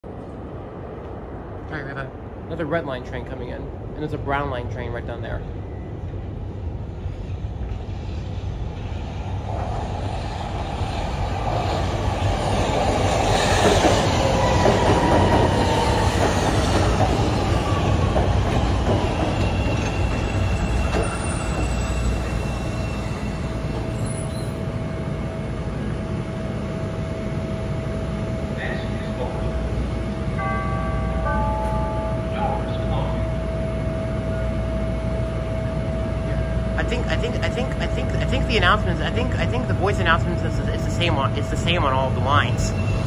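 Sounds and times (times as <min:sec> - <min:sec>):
steady train hum: 0:00.0 - 0:43.0
train pulling into platform: 0:00.1 - 0:43.0
train wheels squealing: 0:19.0 - 0:24.8, 0:42.4 - 0:43.0.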